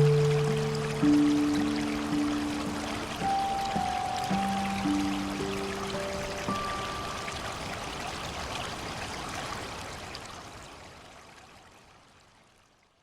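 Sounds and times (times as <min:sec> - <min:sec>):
soft melody note: 0:00.0 - 0:07.9
stream water rushing: 0:00.0 - 0:12.6.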